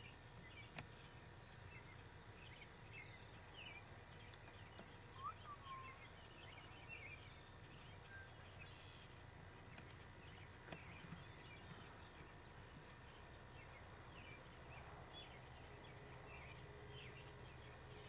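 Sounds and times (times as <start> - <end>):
faint birdsong chirps: 0.0 - 18.0
low steady background hum: 0.0 - 18.0
bird whistled call: 5.1 - 7.2.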